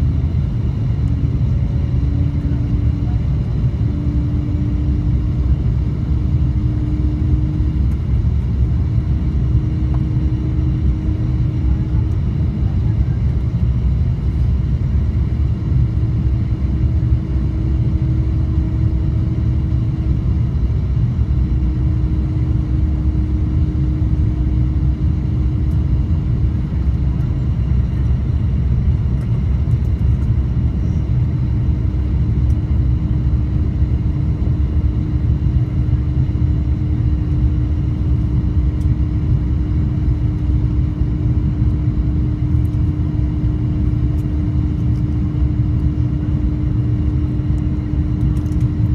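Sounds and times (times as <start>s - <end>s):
airplane cabin roar: 0.0s - 48.9s.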